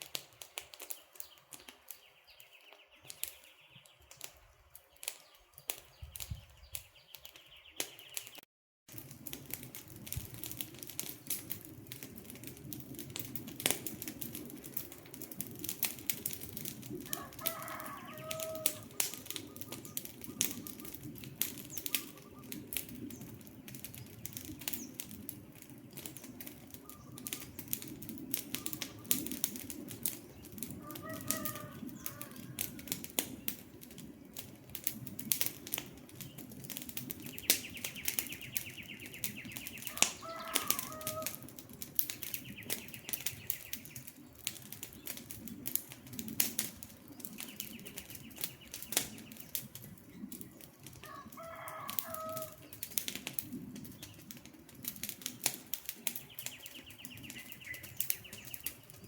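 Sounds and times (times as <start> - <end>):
wood fire crackling: 0.0 - 59.0
bird calling: 17.1 - 21.0, 21.7 - 22.7, 26.7 - 27.6, 37.3 - 41.4.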